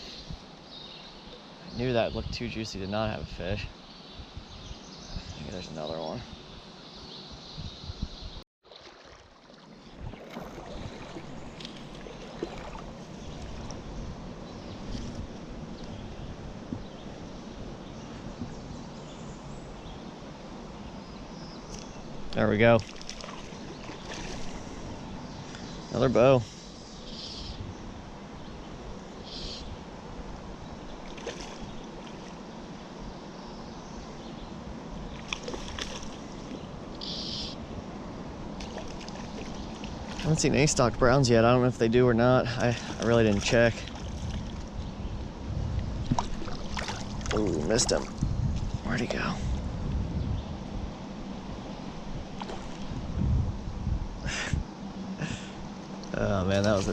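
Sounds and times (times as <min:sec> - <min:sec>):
stream water rushing: 0:08.7 - 0:15.8, 0:22.0 - 0:26.3, 0:29.1 - 0:33.0, 0:34.7 - 0:49.4.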